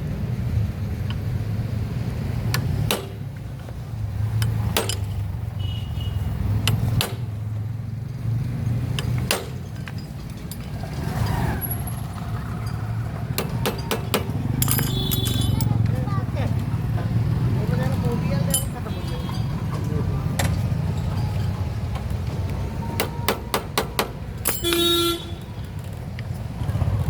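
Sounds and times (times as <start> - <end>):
metal tools clicking on engine parts: 2.4 - 5.5, 6.5 - 7.5, 8.4 - 16.7, 17.6 - 26.5.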